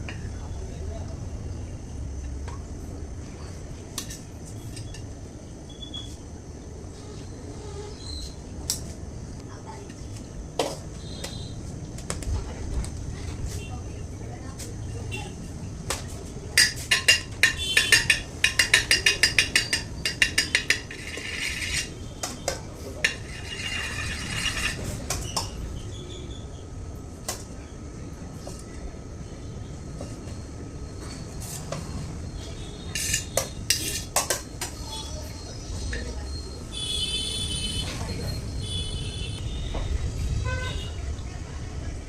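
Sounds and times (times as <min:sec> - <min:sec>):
metal kitchen utensils clinking: 0:16.6 - 0:25.6, 0:32.9 - 0:35.2.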